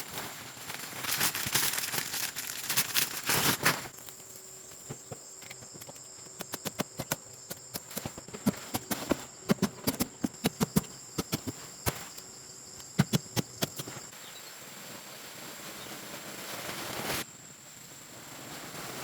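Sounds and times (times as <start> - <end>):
rustling handling noise: 0.0 - 14.1
high insect drone: 0.2 - 16.0.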